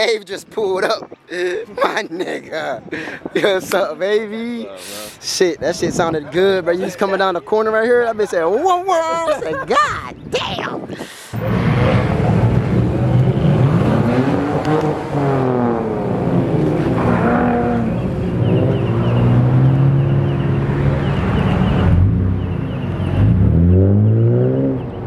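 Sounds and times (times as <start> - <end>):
car engines revving: 11.3 - 25.0.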